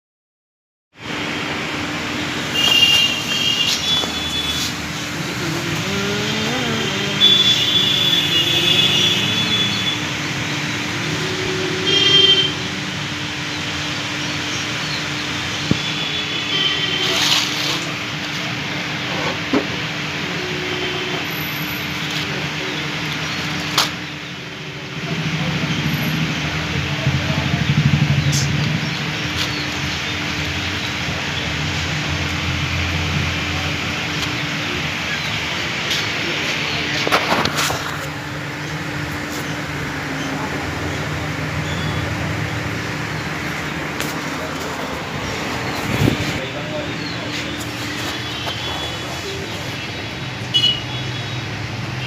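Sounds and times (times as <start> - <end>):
car engine idling: 18.3 - 52.0.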